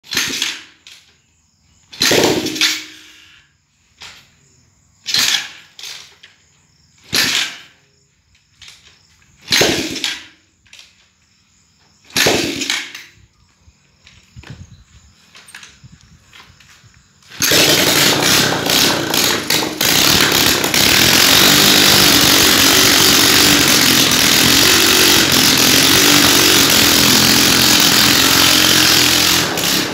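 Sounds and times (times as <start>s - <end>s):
motorcycle engine short bursts: 1.9s - 3.5s, 9.4s - 10.4s, 12.1s - 13.0s, 17.2s - 29.9s.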